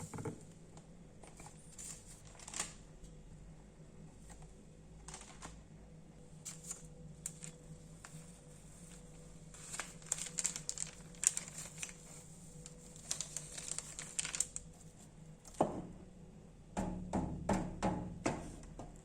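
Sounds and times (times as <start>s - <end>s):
crinkly material crackling: 1.3s - 2.9s, 4.2s - 15.5s.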